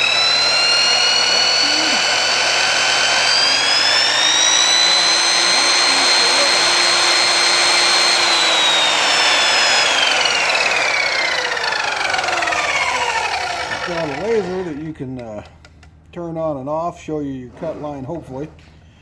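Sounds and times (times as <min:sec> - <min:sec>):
miter saw motor whining: 0:00.0 - 0:15.0.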